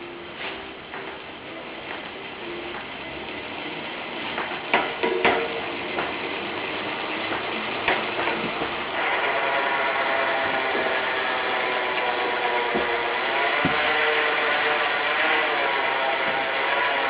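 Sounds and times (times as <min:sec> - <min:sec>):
louder knocks: 0:13.6 - 0:14.0.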